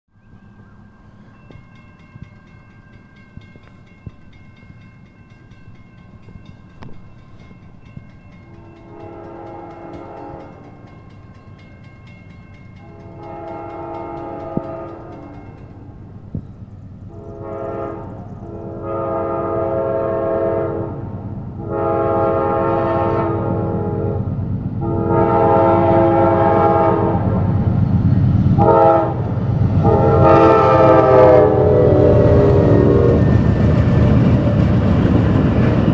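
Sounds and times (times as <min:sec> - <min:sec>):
train rumble: 0:00.2 - 0:35.9
train horn blasts: 0:08.4 - 0:10.9, 0:12.8 - 0:16.0, 0:17.1 - 0:27.5, 0:28.6 - 0:33.4.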